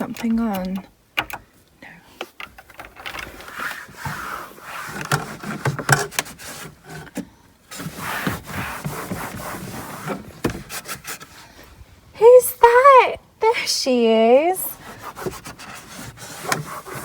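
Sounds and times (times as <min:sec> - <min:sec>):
small knocks and clicks: 0:00.0 - 0:01.4
cloth wiping plastic: 0:07.7 - 0:11.4, 0:14.8 - 0:17.0.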